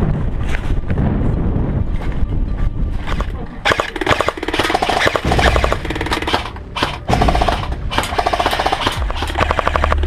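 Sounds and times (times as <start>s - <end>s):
toy gun firing rapid bursts: 3.7s - 10.0s.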